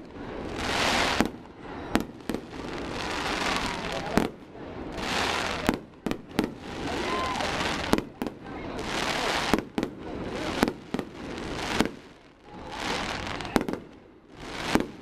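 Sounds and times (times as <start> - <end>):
firework bangs: 0.0 - 15.0
hissing crackle: 0.0 - 15.0.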